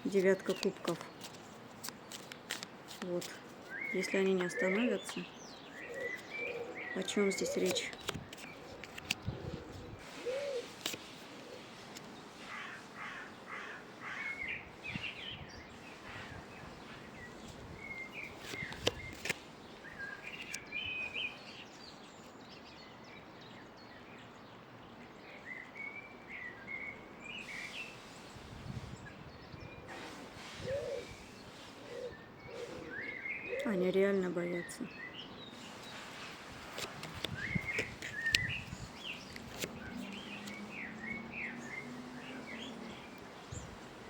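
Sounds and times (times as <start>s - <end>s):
steady background hiss: 0.0s - 29.0s
small birds chirping: 0.0s - 44.0s.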